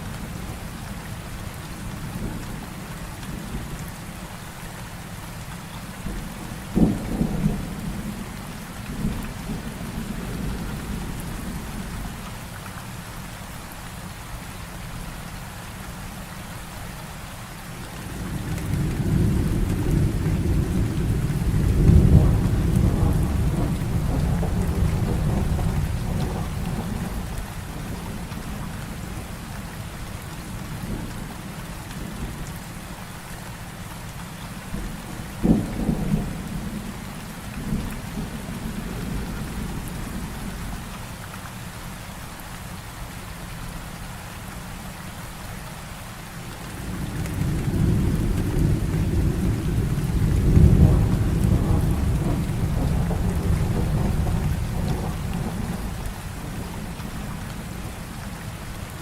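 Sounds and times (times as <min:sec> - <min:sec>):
heavy rain falling: 0:00.0 - 0:59.0
deep roll of thunder: 0:18.0 - 0:28.7, 0:46.6 - 0:58.0
sharp thunderclap: 0:18.3 - 0:27.3, 0:46.8 - 0:56.7.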